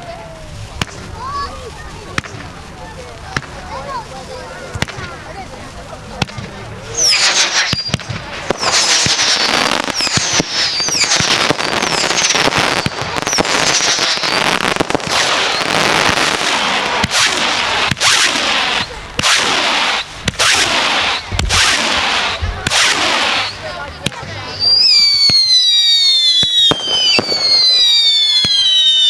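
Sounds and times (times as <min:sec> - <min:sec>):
firework crackling: 0:00.0 - 0:29.0
firework bangs: 0:00.1 - 0:29.0
falling firework whistles: 0:06.8 - 0:29.0.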